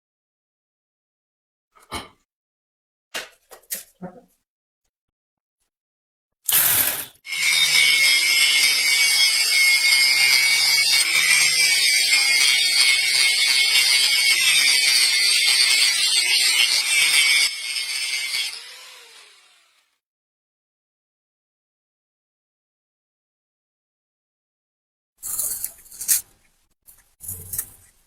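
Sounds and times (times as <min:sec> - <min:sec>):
power tool grinding metal: 0:06.5 - 0:20.0.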